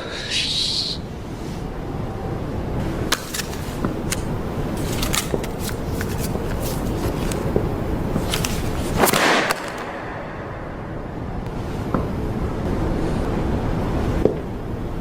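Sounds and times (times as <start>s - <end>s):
paper tiles slapping: 3.1s - 10.0s.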